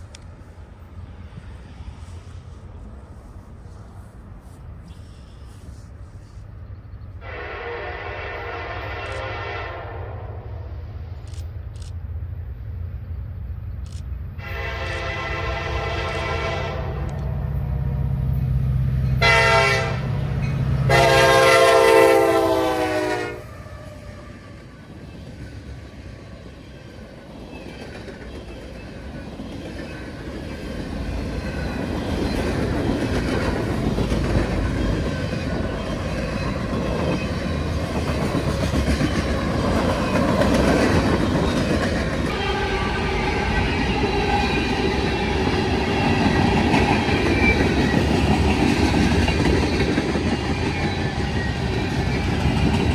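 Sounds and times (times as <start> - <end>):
train rumbling past: 0.0 - 52.9
train horn blasts: 7.2 - 10.6, 14.4 - 18.1, 19.2 - 24.5, 42.3 - 44.7.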